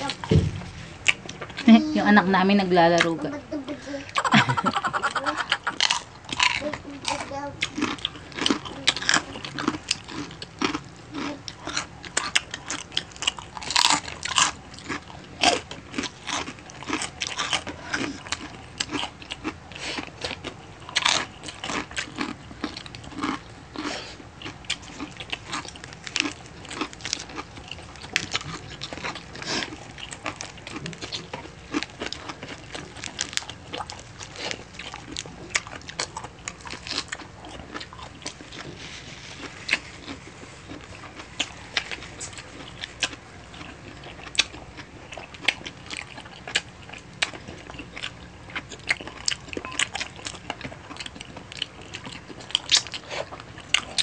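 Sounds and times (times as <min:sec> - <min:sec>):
crunching and chewing: 0:00.0 - 0:03.4, 0:04.0 - 0:54.0.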